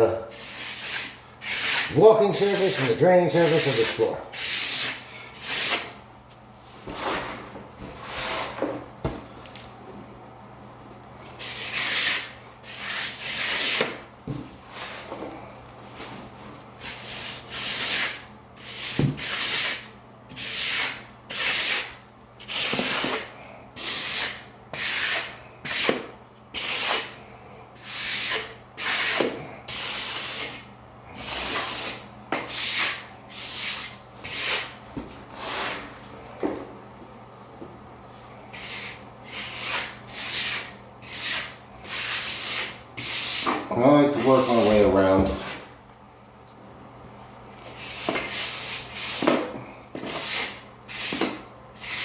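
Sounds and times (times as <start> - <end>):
hand float scraping mortar: 0.3 - 5.9.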